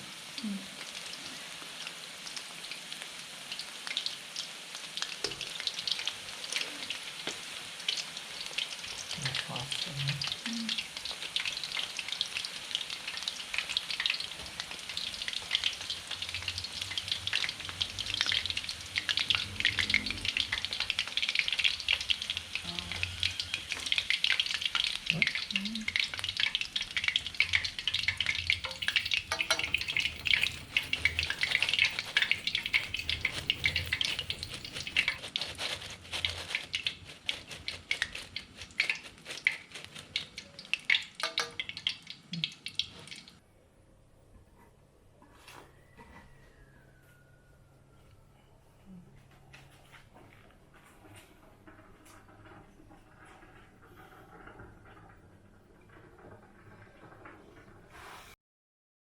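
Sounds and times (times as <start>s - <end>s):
food frying in hot oil: 0.0s - 43.4s.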